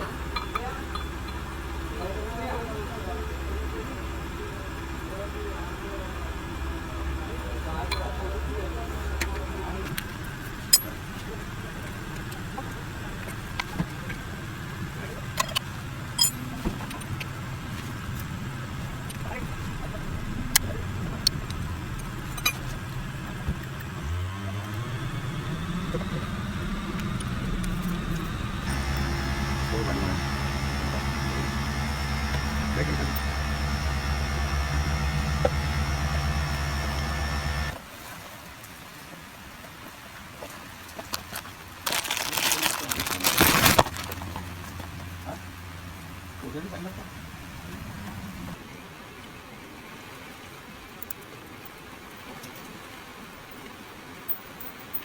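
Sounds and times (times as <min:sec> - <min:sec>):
car engine idling: 0:00.0 - 0:37.8, 0:41.0 - 0:48.6
steady low hum: 0:00.0 - 0:37.8
metallic clinks and taps: 0:00.3 - 0:01.4, 0:16.2 - 0:16.4.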